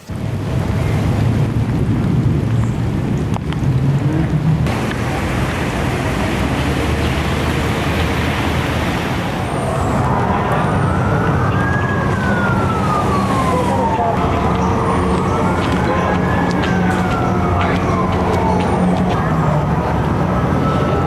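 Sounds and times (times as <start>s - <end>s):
steady rushing noise: 0.0s - 21.0s
emergency vehicle siren wailing: 4.7s - 21.0s.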